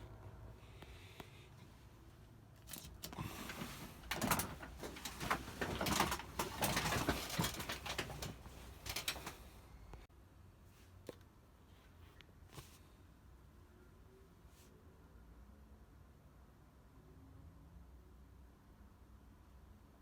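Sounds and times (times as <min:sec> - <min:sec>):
rustling and clicking: 0:02.6 - 0:09.5.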